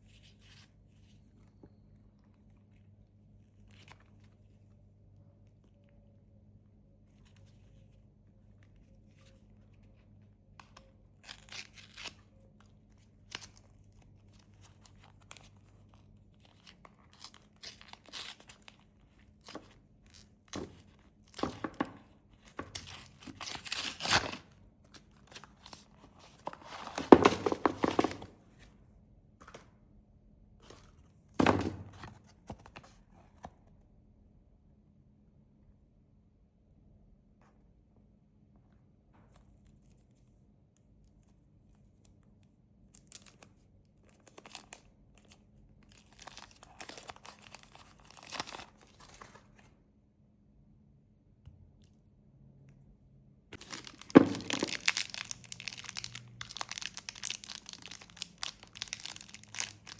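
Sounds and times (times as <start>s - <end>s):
snack wrappers tearing and crinkling: 22.8s - 25.8s, 44.2s - 49.0s, 53.6s - 59.9s.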